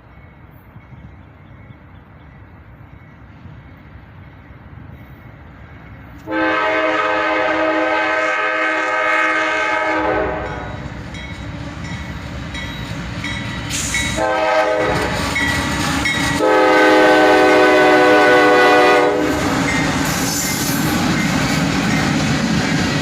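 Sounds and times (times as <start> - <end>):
diesel locomotive engines rumbling: 0.0 - 23.0
train air horn chord: 6.3 - 10.8, 14.1 - 15.2, 16.4 - 19.4.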